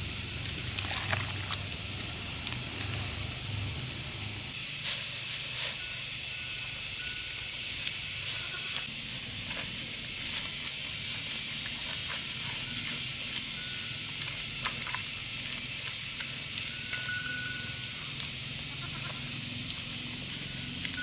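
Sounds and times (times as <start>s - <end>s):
high-pitched hiss: 1.7s - 18.3s.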